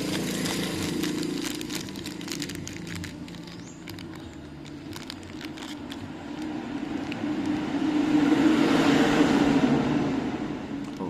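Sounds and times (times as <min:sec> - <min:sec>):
motor vehicle passing by: 0:05.0 - 0:11.0.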